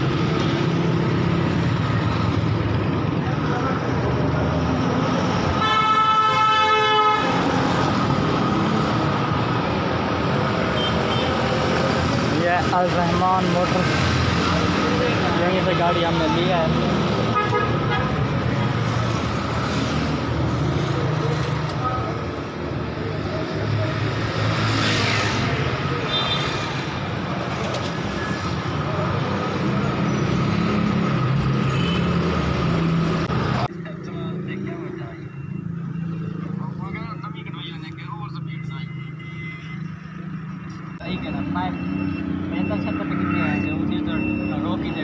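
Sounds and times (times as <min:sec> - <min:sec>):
vehicle engine and road noise: 0:00.0 - 0:45.0
vehicle horn: 0:05.6 - 0:07.4, 0:17.3 - 0:18.2.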